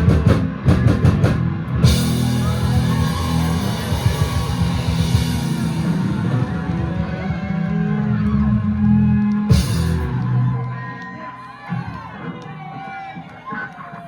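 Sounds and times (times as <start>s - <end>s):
live rock band playing: 0.0s - 10.9s
cymbal crash: 1.8s - 6.8s.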